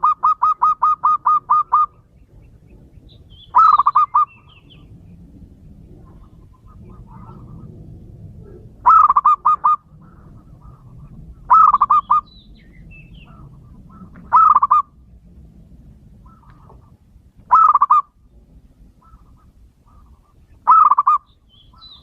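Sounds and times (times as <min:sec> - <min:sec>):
dove cooing: 0:00.0 - 0:15.0, 0:16.2 - 0:18.2, 0:18.8 - 0:22.0
faint bird chirps: 0:19.0 - 0:22.0.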